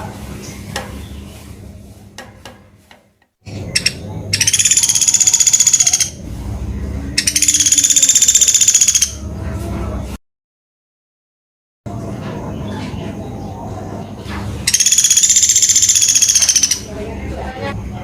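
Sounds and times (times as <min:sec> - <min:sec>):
woodpecker buzzy trill: 0:03.5 - 0:06.2, 0:07.2 - 0:09.2, 0:14.7 - 0:16.9
low hum: 0:03.5 - 0:10.2.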